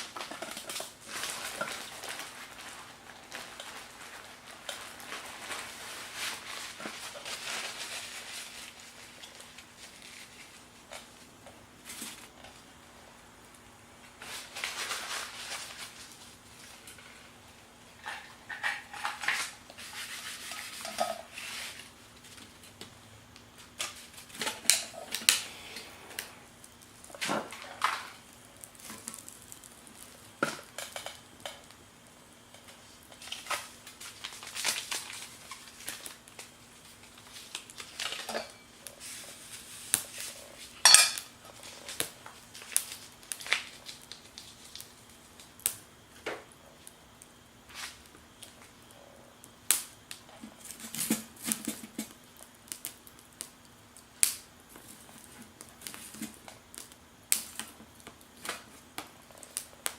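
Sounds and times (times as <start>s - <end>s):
metal cookware and cutlery clinking: 18.0s - 21.4s, 38.0s - 38.7s, 40.8s - 41.3s.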